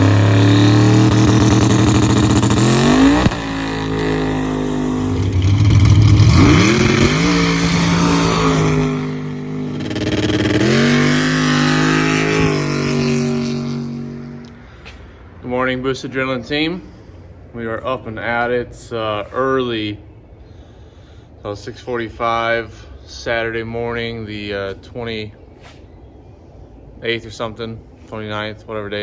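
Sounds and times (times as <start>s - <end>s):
vehicle engine revving: 0.0s - 16.2s.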